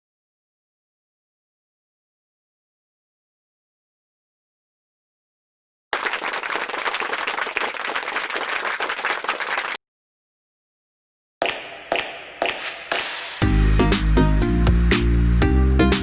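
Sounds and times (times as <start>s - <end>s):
heavy bass beat: 11.4s - 16.0s
music with sharp hits: 11.4s - 16.0s.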